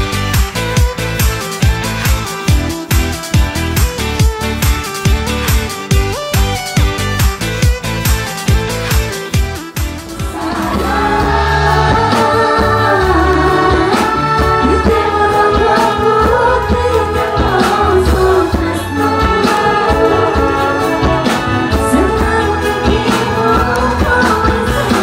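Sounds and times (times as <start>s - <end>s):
heavy bass line: 0.0s - 25.0s
voices singing long held notes: 10.1s - 25.0s.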